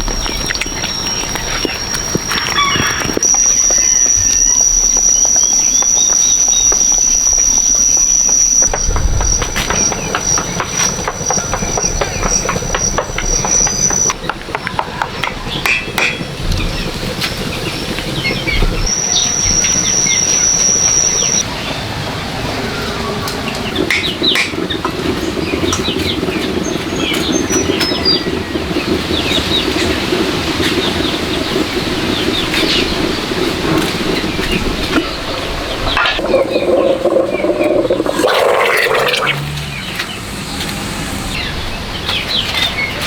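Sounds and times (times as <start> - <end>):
high-pitched insect drone: 0.0 - 14.2, 18.8 - 21.4.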